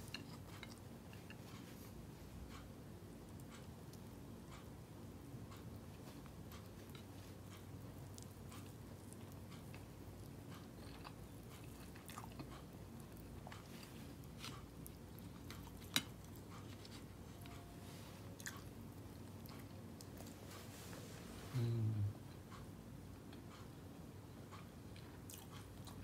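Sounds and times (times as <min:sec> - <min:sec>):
chewing and mouth clicks: 0:00.0 - 0:01.9, 0:06.2 - 0:17.6, 0:18.4 - 0:20.5, 0:24.5 - 0:26.0
low steady hum: 0:00.0 - 0:26.0.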